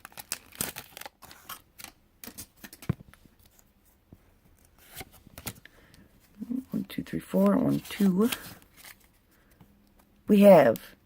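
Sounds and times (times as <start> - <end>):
foil wrapper crinkling: 0.0 - 2.8.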